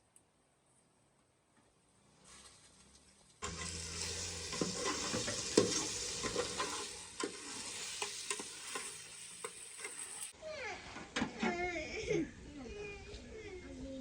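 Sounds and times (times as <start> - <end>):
food sizzling in a pan: 3.4 - 10.4.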